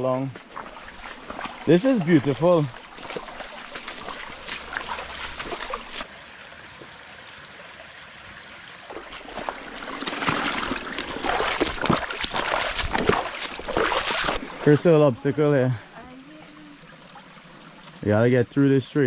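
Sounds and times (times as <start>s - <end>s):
footsteps splashing through water: 0.2s - 6.1s, 8.9s - 14.6s
water trickling over rocks: 0.5s - 18.6s.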